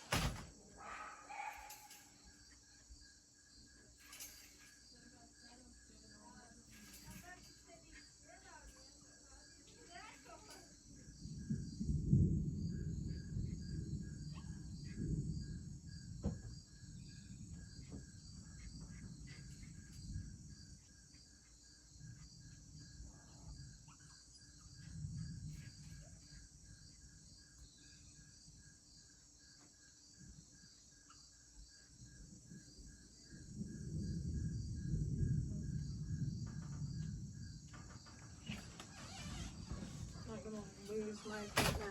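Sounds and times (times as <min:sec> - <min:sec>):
crickets chirping: 0:00.0 - 0:41.9
high insect hum: 0:00.0 - 0:41.9
rolling thunder: 0:10.8 - 0:21.2, 0:22.0 - 0:28.2, 0:32.1 - 0:41.9.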